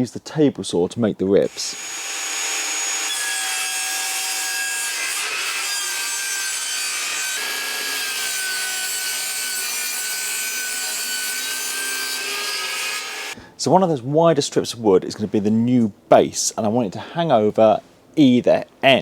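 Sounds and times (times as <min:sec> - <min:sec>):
saw blade cutting wood: 0:01.5 - 0:13.4
table saw motor whine: 0:01.8 - 0:03.3.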